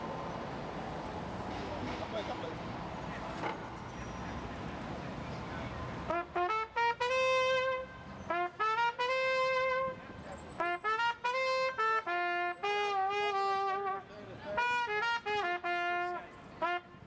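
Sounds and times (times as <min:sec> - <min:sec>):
brass horn melody: 0:06.1 - 0:10.0, 0:10.6 - 0:17.0.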